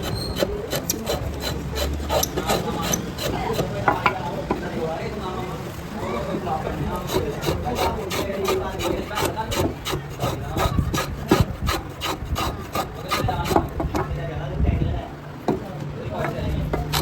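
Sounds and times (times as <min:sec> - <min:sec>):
hand tool scraping wood: 0:00.0 - 0:04.8, 0:05.7 - 0:14.1.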